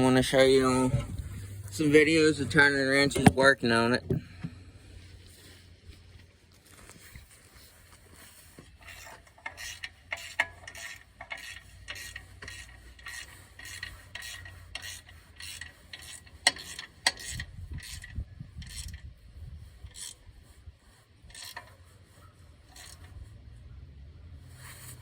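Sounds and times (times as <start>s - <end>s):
low rumble: 0.0s - 6.1s
ratchet wrench rasping: 8.7s - 19.2s, 19.8s - 20.4s, 21.2s - 21.9s, 22.6s - 23.2s.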